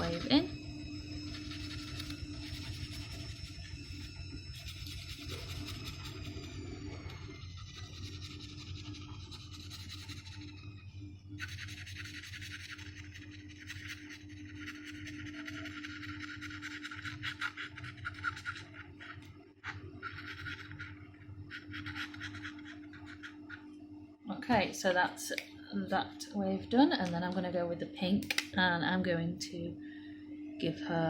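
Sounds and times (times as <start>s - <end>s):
washing machine humming: 0.0s - 31.0s
paintbrush scratching: 1.3s - 10.6s, 11.4s - 18.9s, 21.5s - 23.6s.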